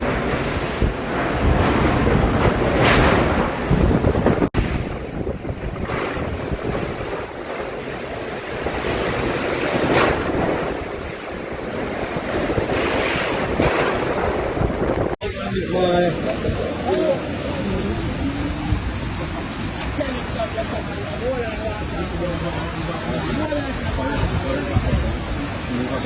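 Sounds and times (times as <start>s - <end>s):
wind buffeting microphone: 0.0s - 19.8s
rushing water: 0.0s - 26.0s.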